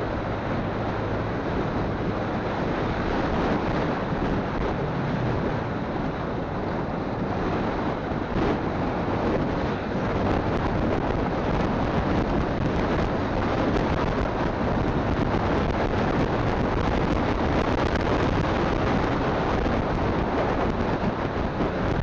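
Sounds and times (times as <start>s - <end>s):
road noise: 0.0s - 22.0s
wind rushing over microphone: 0.0s - 22.0s.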